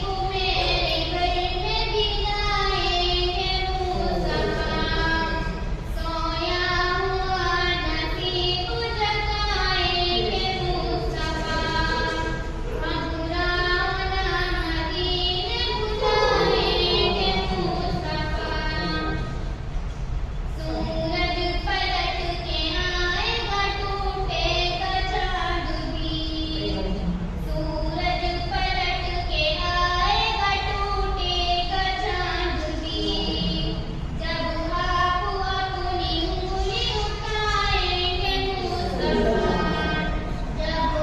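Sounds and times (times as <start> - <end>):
high-pitched voice singing a hymn: 0.0 - 19.2.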